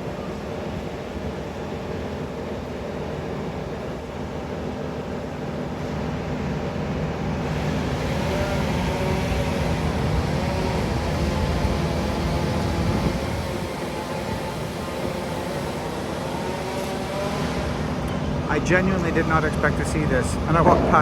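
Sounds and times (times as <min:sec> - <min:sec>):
motor running: 0:07.4 - 0:20.9.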